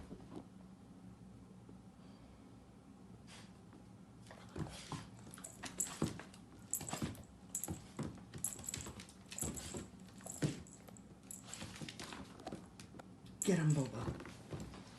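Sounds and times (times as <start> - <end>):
clicking and jingling: 5.3 - 12.0.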